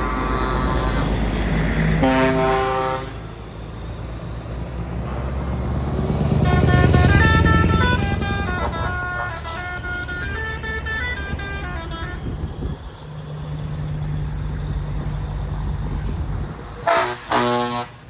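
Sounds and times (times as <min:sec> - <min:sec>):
truck musical horn: 0:00.0 - 0:03.5, 0:06.0 - 0:14.2, 0:15.8 - 0:18.0
heavy truck engine running: 0:00.0 - 0:18.0
air horn blasts: 0:02.0 - 0:03.4, 0:06.4 - 0:12.8, 0:16.8 - 0:18.0.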